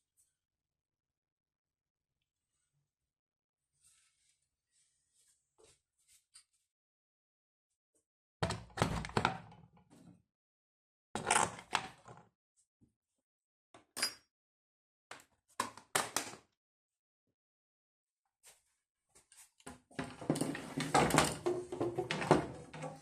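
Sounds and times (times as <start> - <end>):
hard parts knocking and clattering: 20.0 - 23.0.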